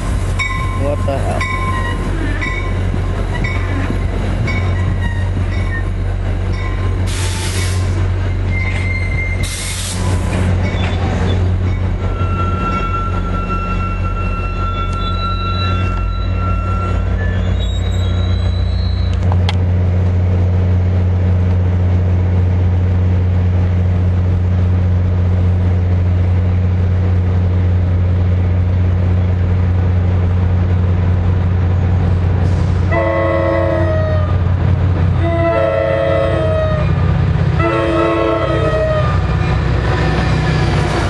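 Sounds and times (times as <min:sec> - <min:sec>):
diesel locomotive engine drone: 0:00.0 - 0:41.0
train wheel squeal: 0:00.4 - 0:19.3
train horn: 0:32.9 - 0:34.4, 0:35.2 - 0:37.0, 0:37.6 - 0:39.3.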